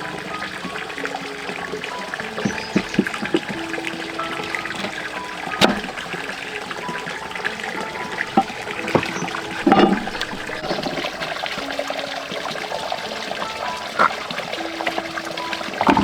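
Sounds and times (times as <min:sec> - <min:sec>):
water running and trickling: 0:00.0 - 0:16.0
water splash: 0:00.0 - 0:16.0
light knocks: 0:04.2 - 0:06.2.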